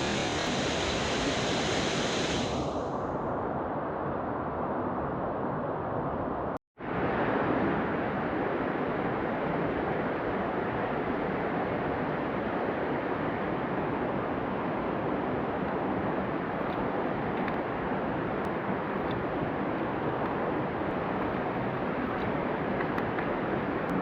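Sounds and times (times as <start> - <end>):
stream water rushing: 13.8 - 24.0.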